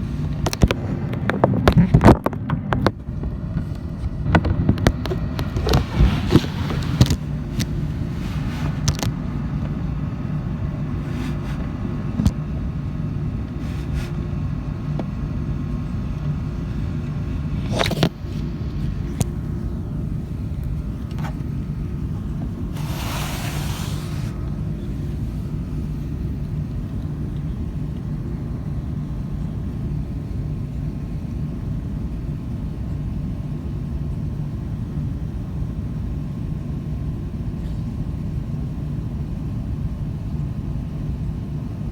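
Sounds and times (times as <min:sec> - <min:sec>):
airplane cabin engine rumble: 0:00.0 - 0:41.9
brief hiss: 0:22.7 - 0:24.5.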